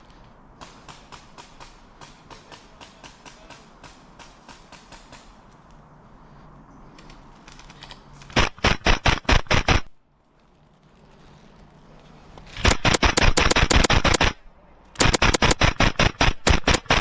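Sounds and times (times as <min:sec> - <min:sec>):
airsoft gun firing bursts: 0:08.3 - 0:09.9, 0:12.6 - 0:17.0.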